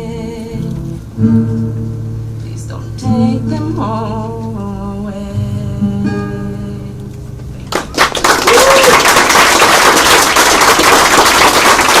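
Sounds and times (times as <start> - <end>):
acoustic guitar chord ringing: 0.0 - 7.0
audience applause: 7.7 - 12.0.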